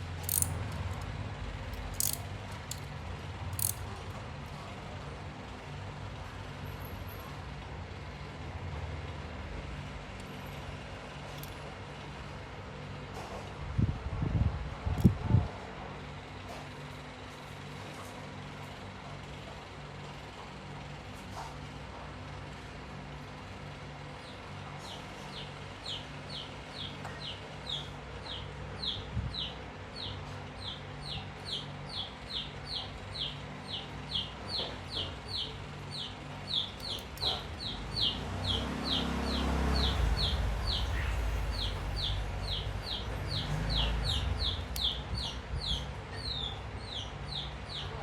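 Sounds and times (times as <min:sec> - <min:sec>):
bird chirping: 0:30.7 - 0:47.9.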